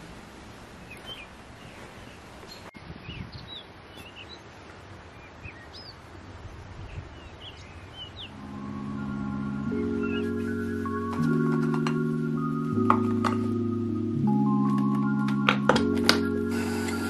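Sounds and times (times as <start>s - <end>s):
outdoor background hiss: 0.0s - 17.0s
small birds chirping: 0.7s - 12.8s
mallet percussion music: 8.4s - 17.0s.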